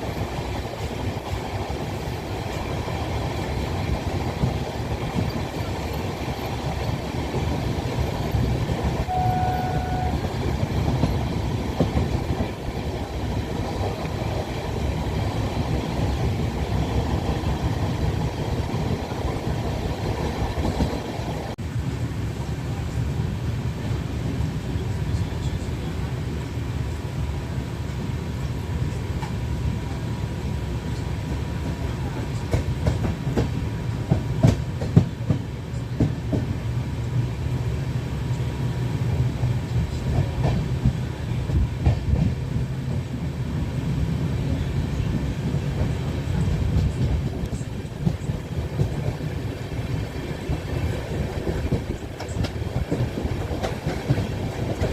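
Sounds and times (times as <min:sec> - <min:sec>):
train rumbling on rails: 0:00.0 - 0:54.9
short steady tone: 0:09.1 - 0:10.3.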